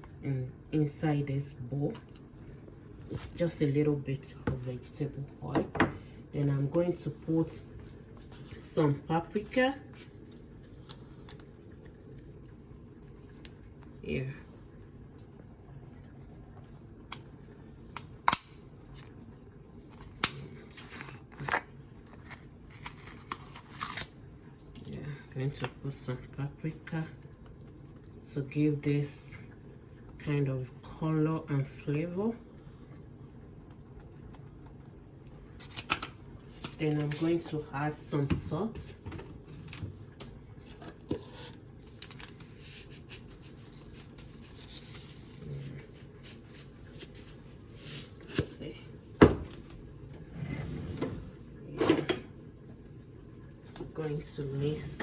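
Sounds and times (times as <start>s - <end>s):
packet rustling: 41.8s - 48.2s.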